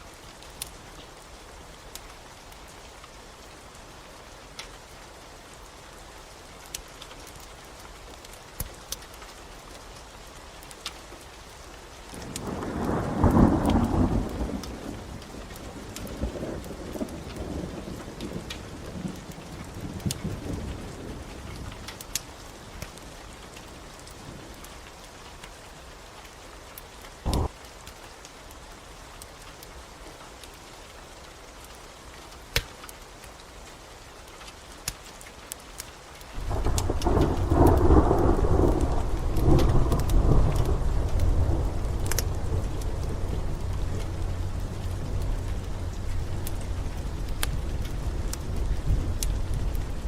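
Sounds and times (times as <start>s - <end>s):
steady rain: 0.0s - 50.0s
wood fire crackling: 0.0s - 50.0s
thunder rumbling: 12.2s - 21.6s, 27.3s - 27.6s, 36.4s - 50.0s.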